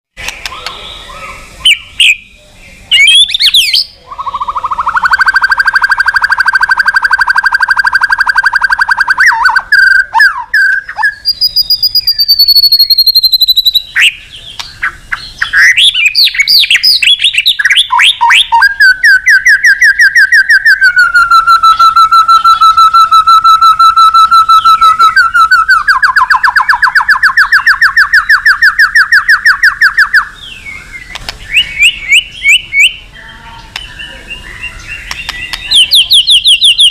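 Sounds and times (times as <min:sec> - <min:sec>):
songbird trills and whistles: 0:00.2 - 0:36.9.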